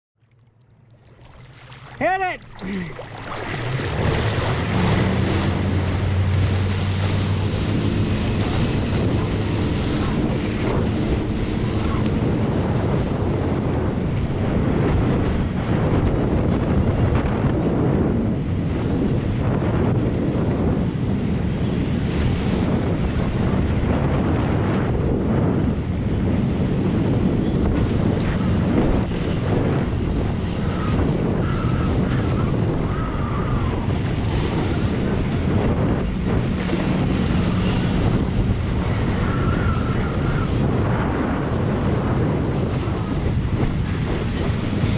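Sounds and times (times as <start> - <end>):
boat engine hum: 0.2 - 17.4, 25.7 - 44.9
water rushing past hull: 0.2 - 17.4, 31.6 - 44.9
wind buffeting microphone: 0.3 - 44.9.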